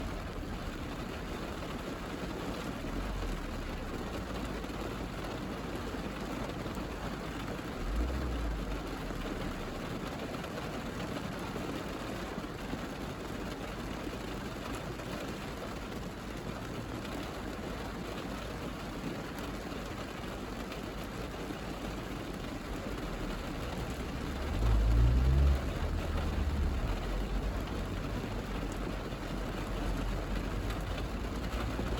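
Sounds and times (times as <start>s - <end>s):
rain on a car roof: 0.0s - 31.9s
low rumble: 22.8s - 31.9s.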